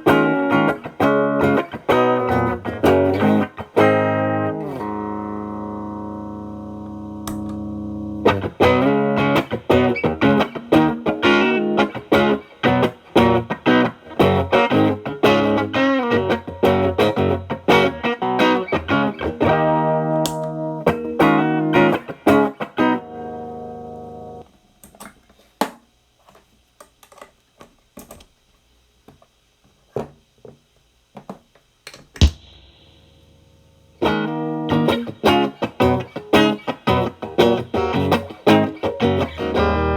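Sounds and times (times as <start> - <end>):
clean electric guitar playing: 0.0 - 24.4, 32.2 - 39.9
faint amp hum: 0.0 - 39.9
guitar string taps: 7.2 - 7.6, 20.2 - 20.6, 31.9 - 32.8.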